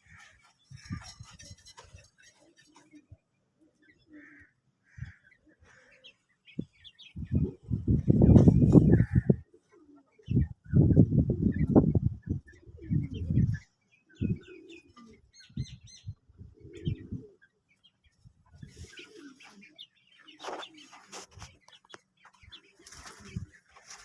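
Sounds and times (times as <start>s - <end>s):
wings fluttering: 0.0s - 3.0s, 20.4s - 24.0s
quails chirping: 0.0s - 24.0s.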